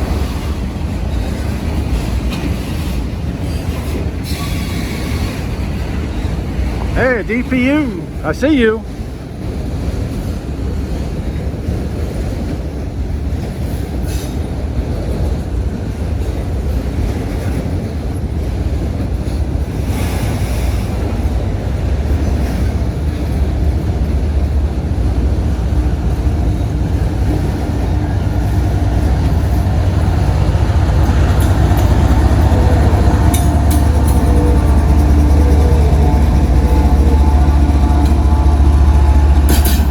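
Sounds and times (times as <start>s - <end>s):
train wheels rumbling: 0.0s - 39.9s
steady tones: 24.1s - 39.9s.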